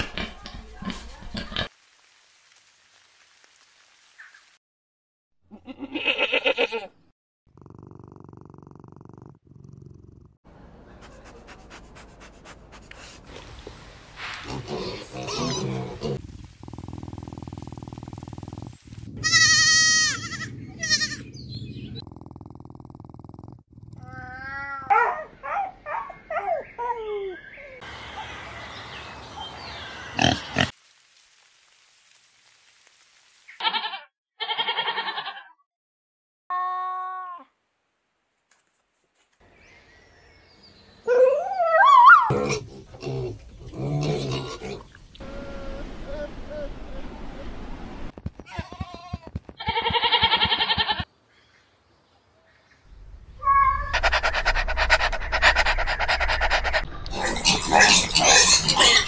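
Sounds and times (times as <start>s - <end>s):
pigs grunting and squealing: 14.4s - 21.2s, 30.2s - 30.7s, 42.1s - 45.7s, 53.4s - 59.0s
sheep bleating: 19.2s - 21.3s, 33.6s - 35.6s, 48.5s - 51.1s
cat meowing: 53.4s - 54.1s
dog panting: 54.0s - 56.9s.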